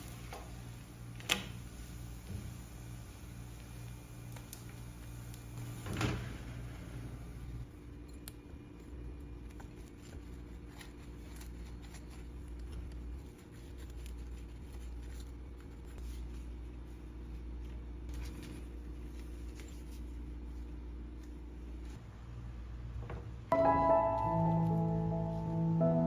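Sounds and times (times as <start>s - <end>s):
low hum: 23.5s - 26.0s.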